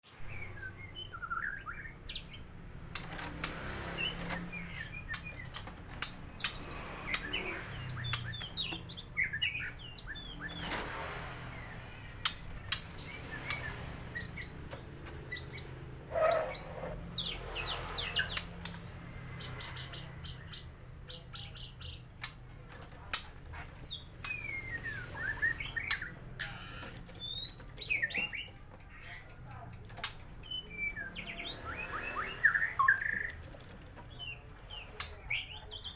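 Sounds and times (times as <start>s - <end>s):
bird singing varied whistles: 30.0s - 33.4s.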